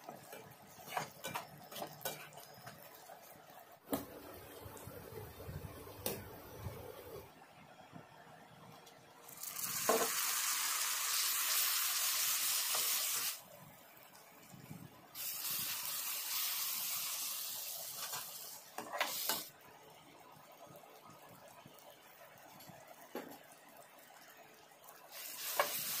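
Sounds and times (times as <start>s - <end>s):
food sizzling in hot oil: 9.2s - 13.4s, 15.1s - 19.6s, 25.0s - 26.0s.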